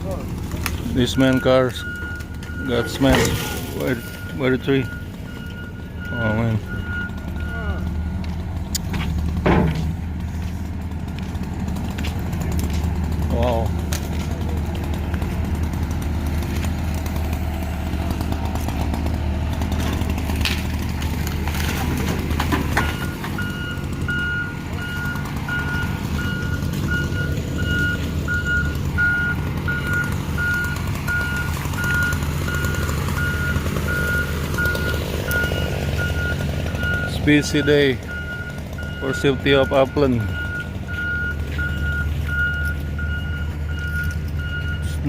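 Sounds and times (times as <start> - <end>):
vehicle engine running: 0.0 - 45.0
reversing alarm beeping: 1.0 - 8.4, 22.8 - 45.0.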